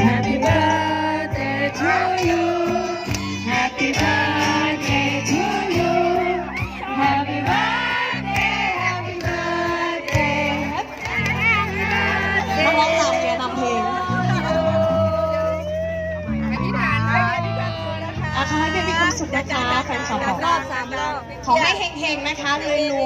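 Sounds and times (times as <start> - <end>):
person singing: 0.0 - 7.2.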